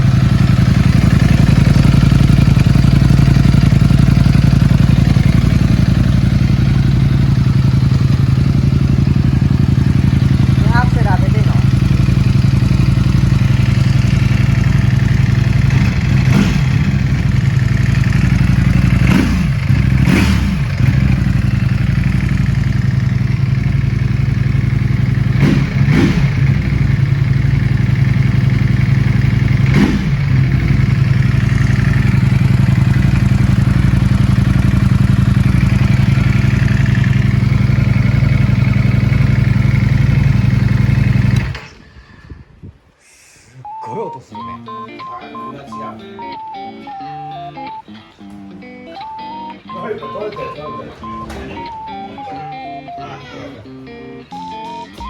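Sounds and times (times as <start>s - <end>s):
motorcycle engine idling: 0.0s - 42.1s
throttle blips: 43.6s - 55.0s.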